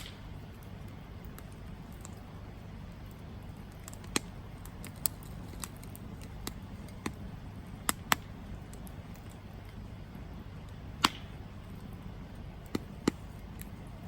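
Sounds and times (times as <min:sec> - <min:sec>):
campfire rumbling: 0:00.0 - 0:14.0
fire popping and crackling: 0:00.0 - 0:14.0.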